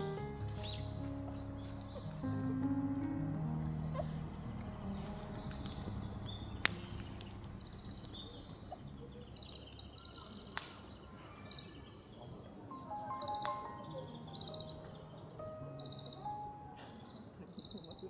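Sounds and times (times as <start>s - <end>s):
low steady rumble: 0.0s - 10.6s
sharp cracks: 0.0s - 12.2s, 12.9s - 15.0s
small birds chirping: 0.0s - 18.0s.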